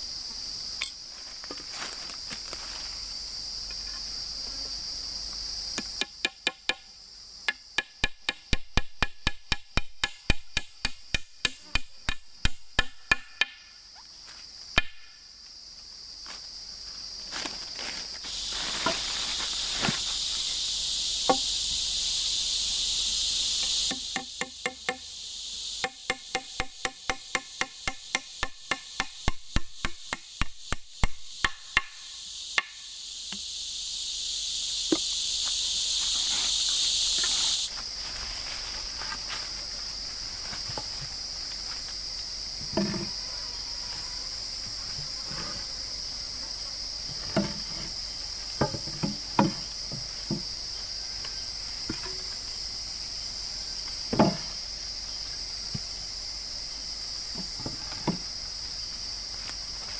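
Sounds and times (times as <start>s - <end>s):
insect chorus: 0.0s - 59.9s
loud high insect buzz: 0.0s - 59.9s
chopping wood: 7.5s - 13.6s, 14.8s - 15.1s, 23.9s - 25.0s, 25.8s - 32.0s, 48.6s - 49.6s, 54.1s - 54.5s.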